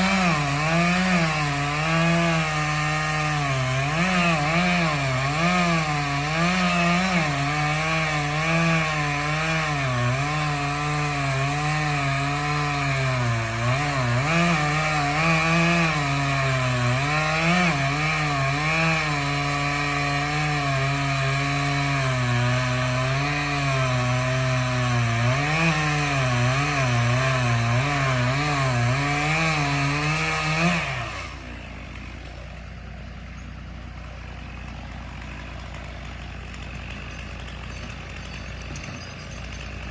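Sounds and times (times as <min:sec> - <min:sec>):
chainsaw cutting tree: 0:00.0 - 0:39.9
engine running steadily: 0:31.0 - 0:39.9.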